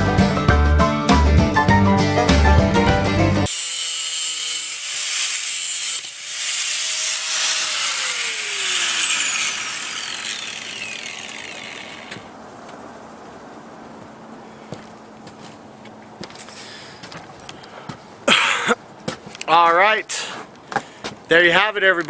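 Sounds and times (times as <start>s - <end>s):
angle grinder cutting metal: 3.5s - 12.3s
grinder disc spinning down: 3.5s - 12.3s.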